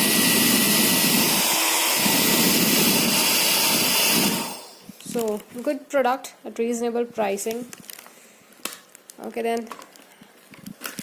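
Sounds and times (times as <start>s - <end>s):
hair dryer blowing air: 0.0s - 4.9s.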